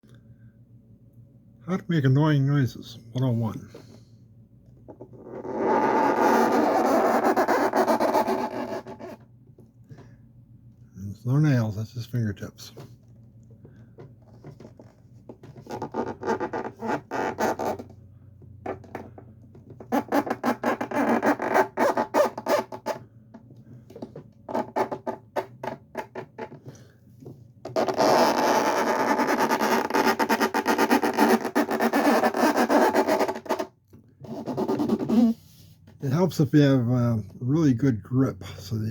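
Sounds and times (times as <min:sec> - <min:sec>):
fingertips squealing on furniture: 0:05.3 - 0:09.2, 0:27.7 - 0:33.7, 0:34.3 - 0:35.6.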